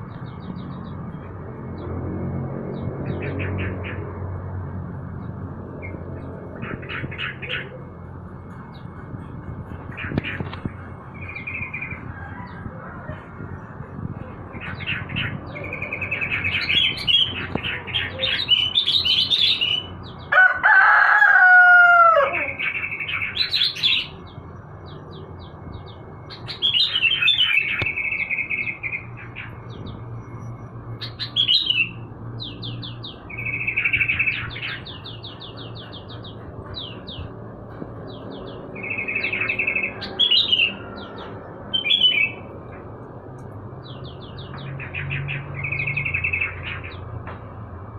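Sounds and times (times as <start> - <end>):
songbirds chirping: 0.0 - 20.4, 21.4 - 47.9
rooster crowing: 12.0 - 13.6, 20.3 - 22.6.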